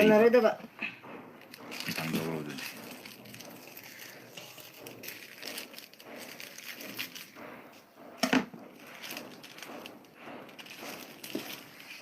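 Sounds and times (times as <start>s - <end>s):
chewing and crunching food: 1.5s - 7.5s.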